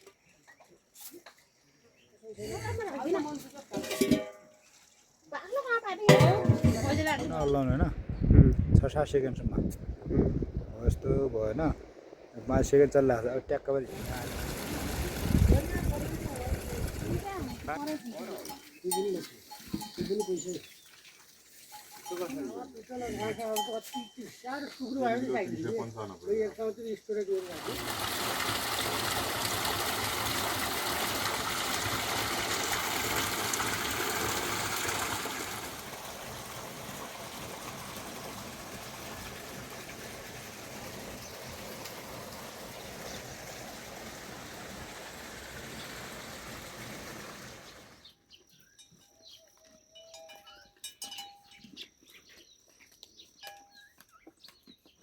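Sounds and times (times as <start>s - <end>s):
running water rushing: 6.1s - 7.5s, 11.9s - 23.0s, 27.2s - 48.0s
faint bird chirps: 48.0s - 55.0s.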